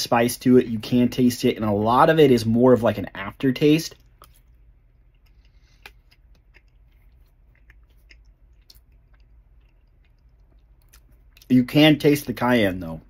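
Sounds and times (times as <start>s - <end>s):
low steady hum: 0.0s - 13.0s
close-up chewing: 3.9s - 11.5s.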